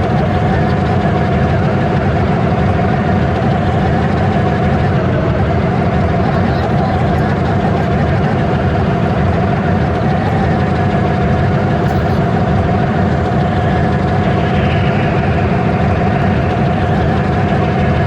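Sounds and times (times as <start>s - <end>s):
train engine rumbling: 0.0s - 18.0s.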